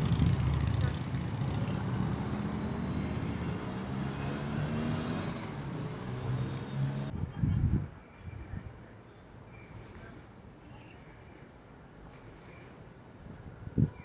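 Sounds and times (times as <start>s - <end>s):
vehicle engine hum: 0.0s - 7.1s.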